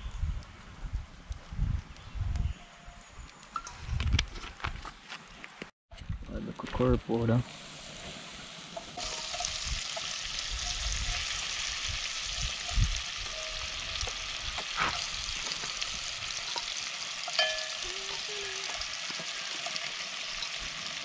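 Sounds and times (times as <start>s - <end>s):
crayfish sizzling in hot oil: 7.2s - 21.0s.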